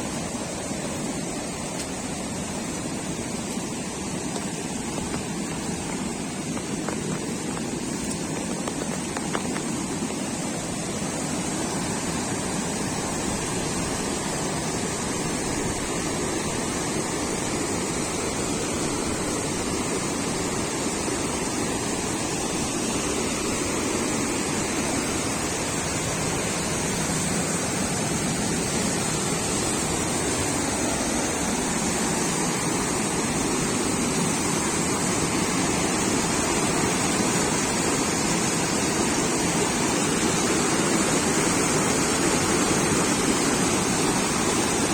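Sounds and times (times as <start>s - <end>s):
fast-flowing water rushing: 0.0s - 44.9s.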